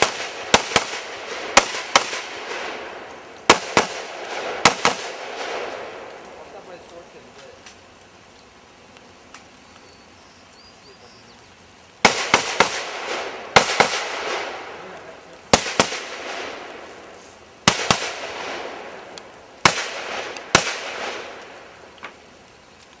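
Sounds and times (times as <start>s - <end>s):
rifle shots echoing: 0.0s - 6.6s, 12.0s - 22.0s.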